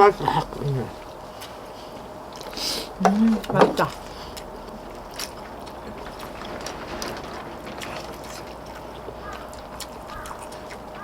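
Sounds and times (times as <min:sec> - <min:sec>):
steady background hiss: 0:00.0 - 0:11.0
chewing: 0:02.3 - 0:11.0.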